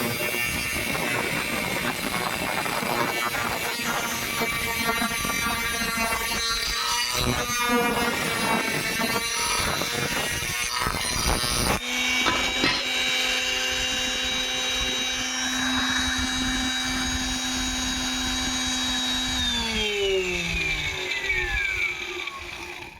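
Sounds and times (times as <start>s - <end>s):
grinder motor whining: 0.0s - 22.9s
rough knocking and scraping: 12.2s - 13.1s.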